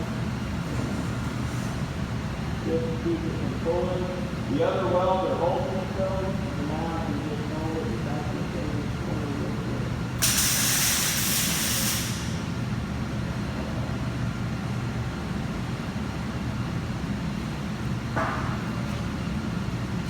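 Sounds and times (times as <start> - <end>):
steady low hum: 0.0 - 10.3, 12.1 - 20.0
welding arc sizzling: 10.2 - 12.3.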